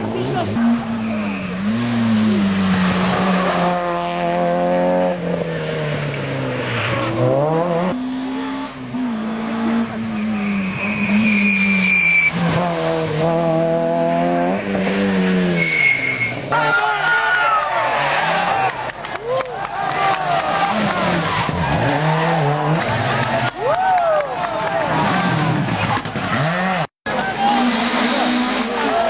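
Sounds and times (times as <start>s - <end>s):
rally car engine revving: 0.0s - 19.0s, 19.9s - 23.6s, 24.6s - 29.0s
tyres squealing: 10.1s - 12.4s.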